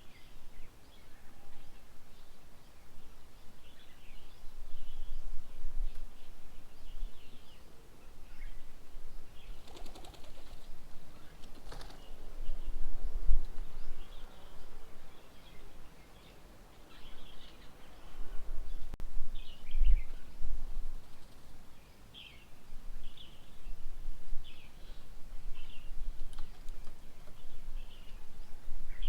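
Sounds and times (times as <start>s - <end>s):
birds chirping: 0.0s - 29.0s
wings flapping: 9.6s - 12.1s.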